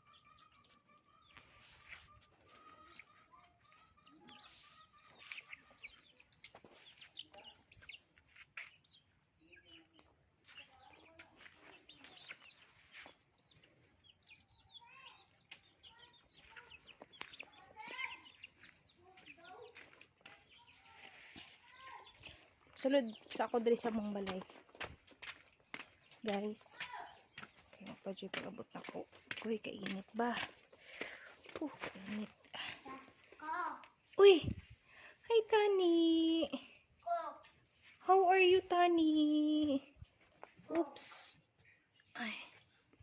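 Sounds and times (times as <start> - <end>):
chickens clucking: 0.0 - 8.2.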